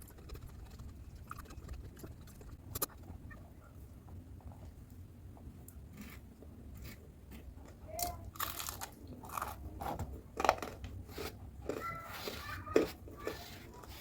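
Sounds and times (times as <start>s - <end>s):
chewing crisp food: 5.6s - 14.0s.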